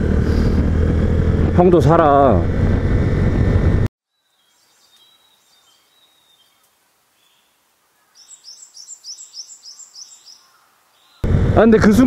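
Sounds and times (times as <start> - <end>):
songbird chirping: 4.0 - 11.3.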